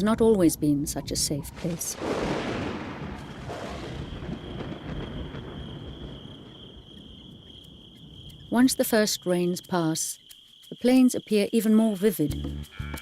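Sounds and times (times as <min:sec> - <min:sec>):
insect trill: 0:00.8 - 0:13.0
thunder rumble: 0:00.9 - 0:09.2.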